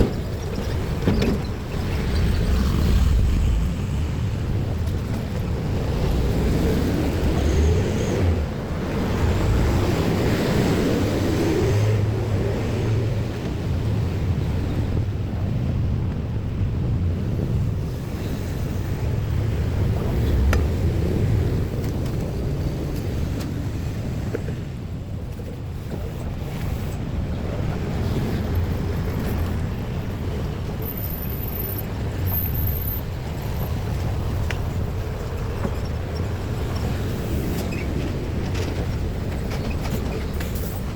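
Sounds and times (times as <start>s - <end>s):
vehicles rumbling past: 0.0s - 15.4s
wind buffeting microphone: 0.0s - 40.9s.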